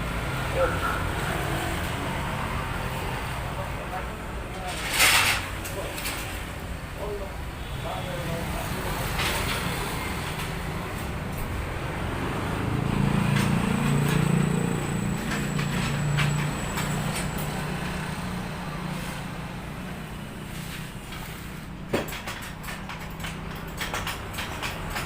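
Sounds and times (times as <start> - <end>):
scattered clicks and knocks: 8.3 - 18.1, 21.1 - 25.0.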